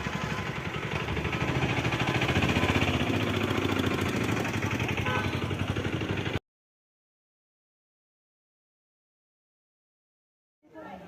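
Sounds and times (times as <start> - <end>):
vehicle engine running: 0.0 - 6.4.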